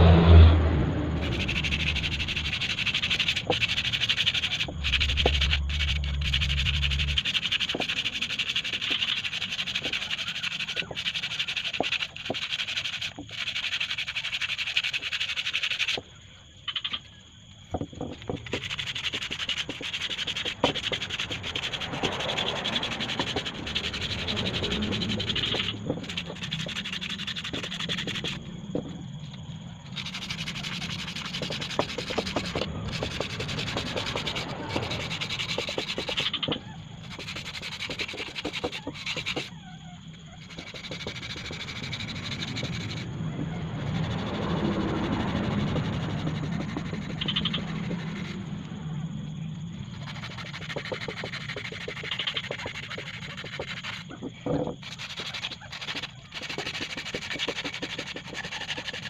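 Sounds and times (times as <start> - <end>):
abrasive scraping on metal: 18.0 - 43.1.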